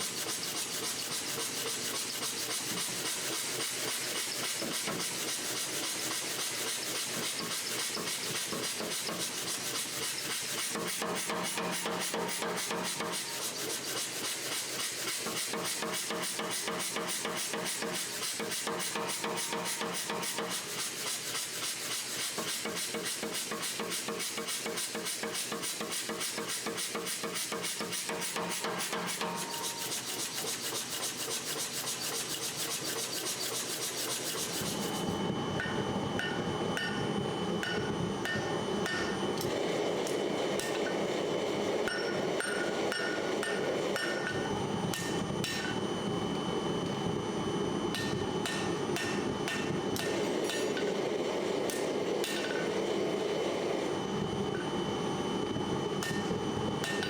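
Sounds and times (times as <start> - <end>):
file rasping against steel: 0.0 - 35.2.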